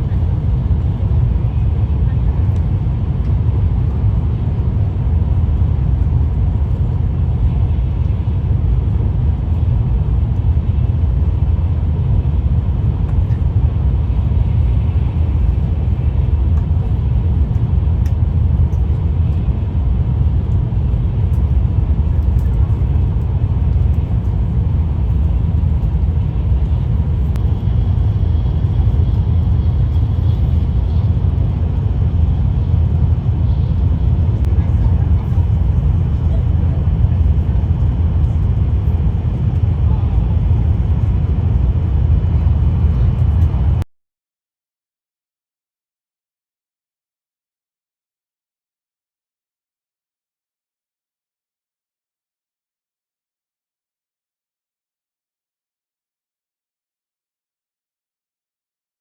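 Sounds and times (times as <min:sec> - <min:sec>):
train running deep rumble: 0:00.0 - 0:43.8.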